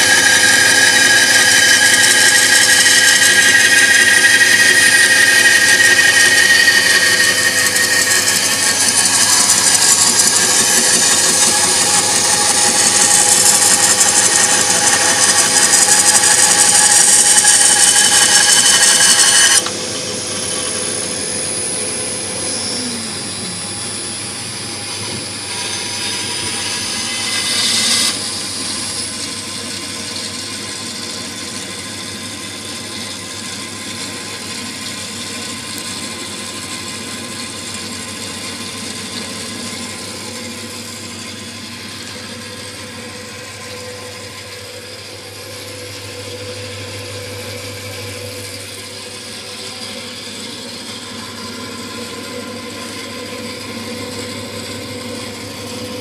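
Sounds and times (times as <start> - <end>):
miniature sawmill motor whine: 0.0 - 56.0.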